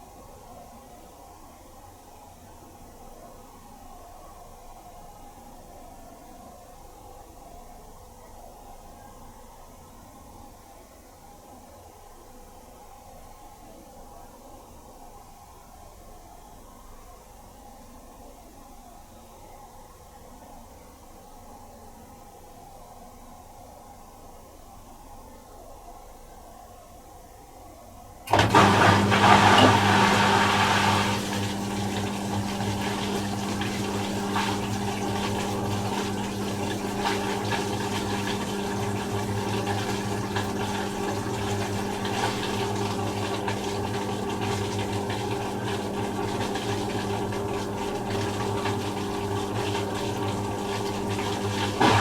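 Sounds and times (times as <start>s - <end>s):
gush of water draining: 28.3s - 52.0s
pump humming: 28.3s - 52.0s.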